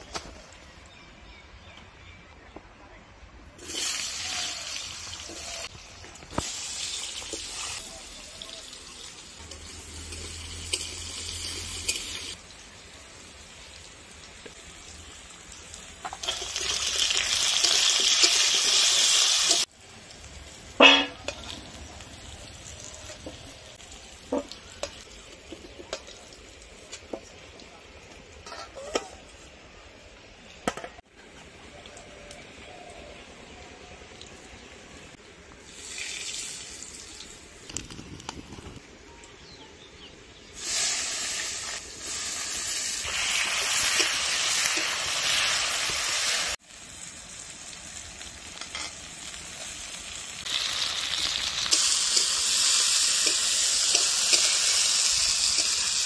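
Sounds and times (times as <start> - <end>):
potatoes sizzling in hot oil: 3.6 - 28.5, 35.6 - 38.2, 40.4 - 56.0
metallic clank: 20.8 - 21.4.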